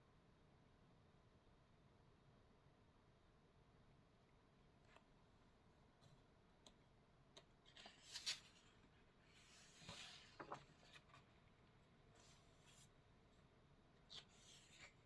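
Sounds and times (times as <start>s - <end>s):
paper rustling: 7.6s - 12.9s, 14.0s - 15.0s.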